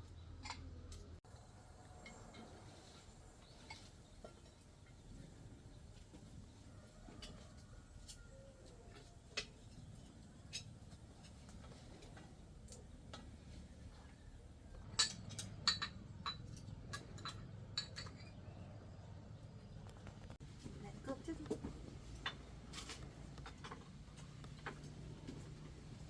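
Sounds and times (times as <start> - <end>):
sharp light clicks and clinks: 6.9 - 13.6, 14.7 - 19.0.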